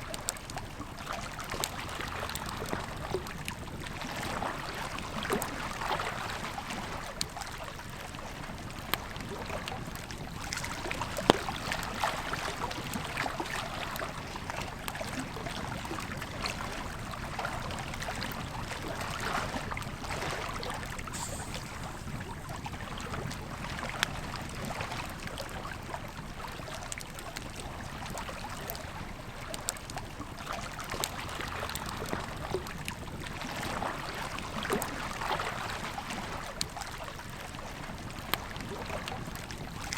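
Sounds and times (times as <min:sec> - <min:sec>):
campfire crackling and popping: 0:20.8 - 0:24.6.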